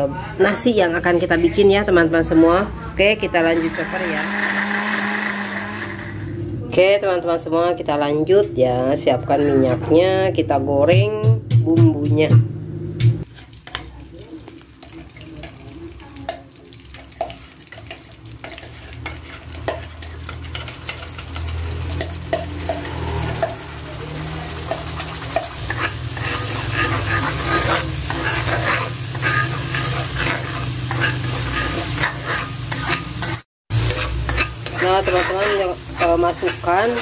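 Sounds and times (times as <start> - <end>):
paste sizzling in hot oil: 13.2 - 37.0
spatula stirring and scraping: 13.2 - 37.0.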